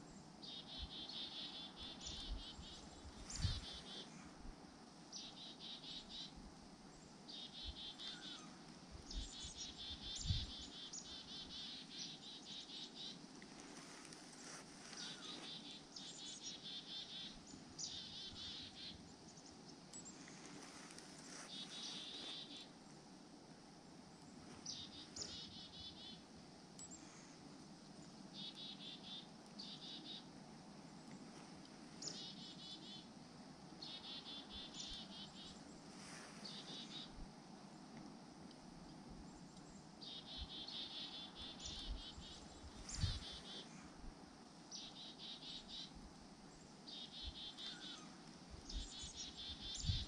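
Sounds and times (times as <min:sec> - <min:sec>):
low outdoor background: 0:00.0 - 0:50.0
songbird trilling: 0:00.4 - 0:04.1, 0:07.3 - 0:13.2, 0:21.4 - 0:22.7, 0:33.8 - 0:35.6, 0:40.0 - 0:43.7, 0:46.9 - 0:50.0.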